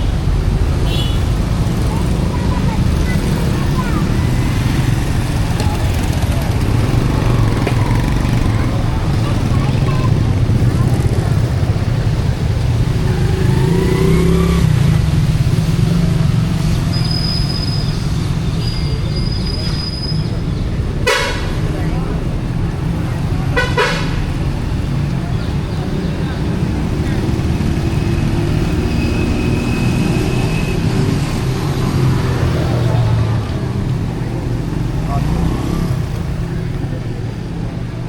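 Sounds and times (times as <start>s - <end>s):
street traffic rumble: 0.0s - 38.0s
vehicle engine accelerating: 1.4s - 18.4s, 25.8s - 37.8s.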